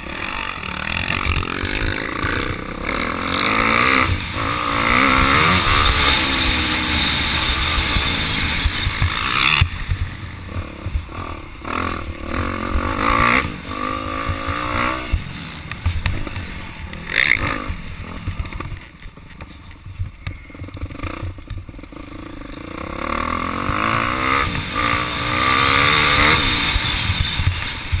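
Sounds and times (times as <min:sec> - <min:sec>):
dirt bike engine revving: 0:00.0 - 0:18.8, 0:20.6 - 0:28.0.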